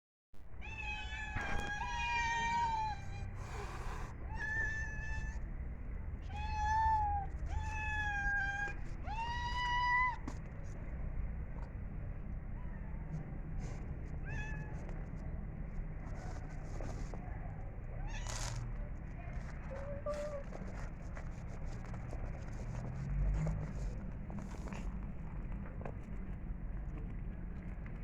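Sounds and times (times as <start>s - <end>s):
cat meowing: 0.6s - 5.4s, 6.2s - 10.2s.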